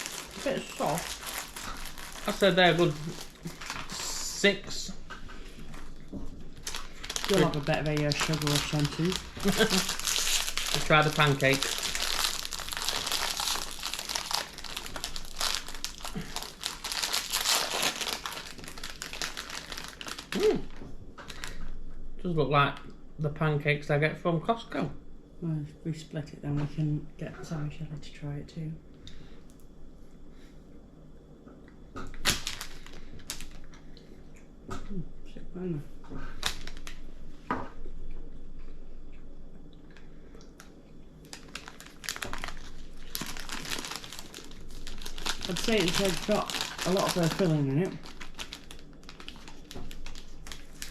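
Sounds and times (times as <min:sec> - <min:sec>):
plastic wrapper crinkling: 0:00.0 - 0:04.9, 0:05.6 - 0:21.6, 0:32.2 - 0:33.8, 0:36.3 - 0:37.0, 0:40.6 - 0:50.9.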